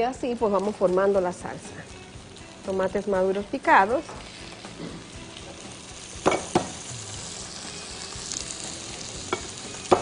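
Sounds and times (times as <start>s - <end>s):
sofrito sizzling in a pot: 0.0s - 10.0s
spoon knocking on pot: 6.2s - 6.8s.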